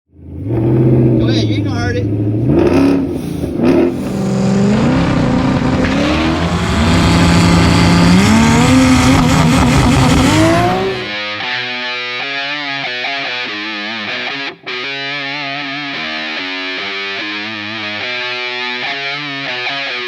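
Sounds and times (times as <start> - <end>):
car engine revving hard: 0.2 - 11.1
rock music with electric guitar: 2.6 - 20.0.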